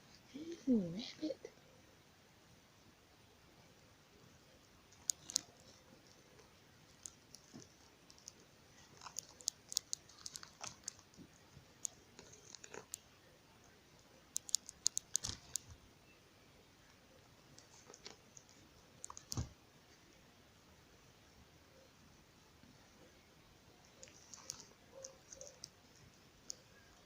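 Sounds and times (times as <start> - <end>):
small sharp clicks: 4.9 - 6.2, 9.0 - 13.1, 14.3 - 15.8, 23.9 - 26.7
light crunching: 4.9 - 13.1.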